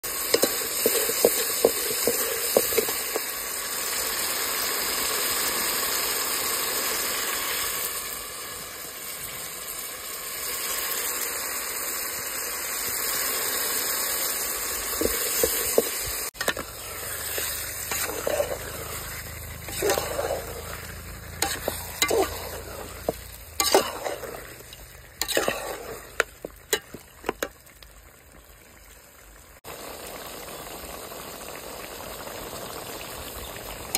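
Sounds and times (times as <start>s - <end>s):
curry sizzling in a metal pot: 0.0s - 33.9s
utensil scraping and knocking pot: 0.1s - 3.3s, 14.9s - 27.6s.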